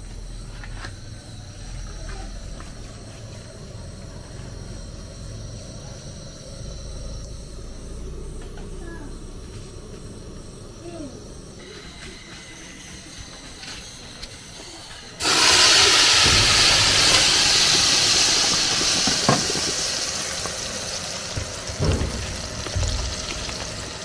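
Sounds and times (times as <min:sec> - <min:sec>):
food sizzling in hot oil: 0:15.2 - 0:24.0
knocks: 0:21.3 - 0:24.0.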